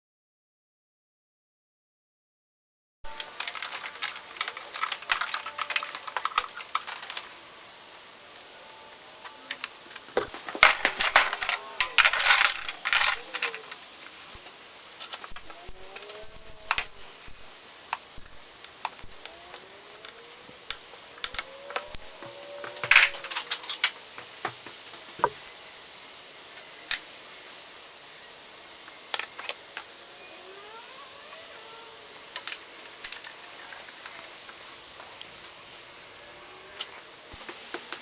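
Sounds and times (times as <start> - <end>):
hand tools clicking and clinking: 10.5 - 13.8, 15.3 - 17.6, 18.2 - 19.4, 20.0 - 22.2, 22.8 - 23.6.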